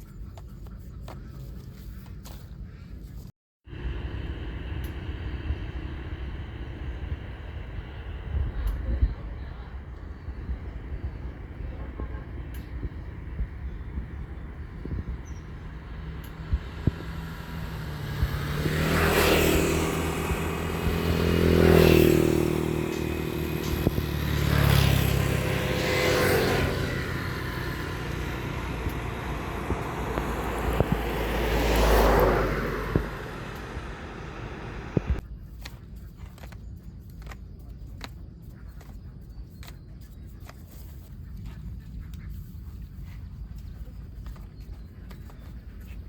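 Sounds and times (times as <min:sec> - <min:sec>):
background traffic rumble: 0:03.7 - 0:35.2
vehicles passing: 0:03.7 - 0:35.2.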